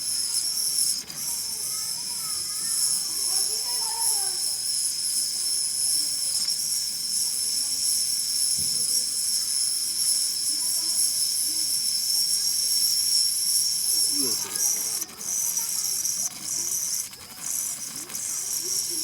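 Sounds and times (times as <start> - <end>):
faint voices: 0.0 - 19.0
insects singing: 0.0 - 19.0.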